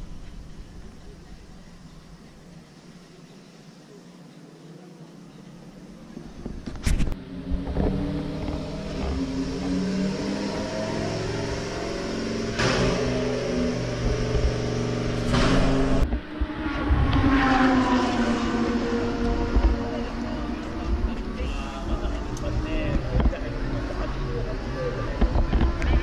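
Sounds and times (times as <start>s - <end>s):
car engines revving: 5.4s - 26.0s.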